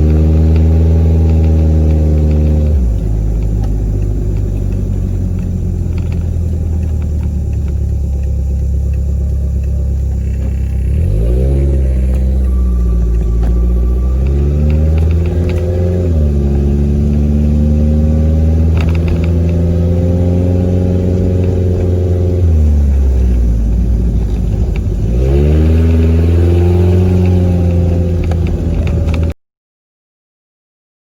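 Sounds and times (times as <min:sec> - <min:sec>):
small car engine revving: 0:00.0 - 0:29.4.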